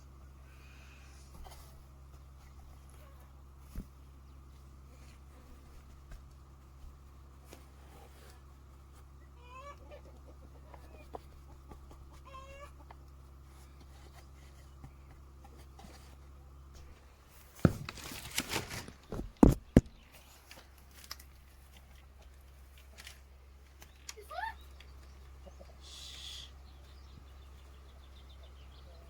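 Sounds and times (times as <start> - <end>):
low steady hum: 0.0 - 29.0
chickens clucking: 9.0 - 15.0, 24.2 - 29.0
loud knocks and rustling: 16.8 - 20.1.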